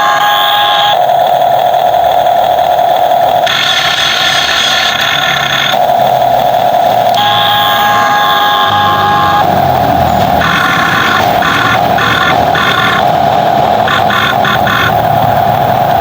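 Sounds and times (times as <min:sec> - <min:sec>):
electric motor whine: 0:03.4 - 0:16.0.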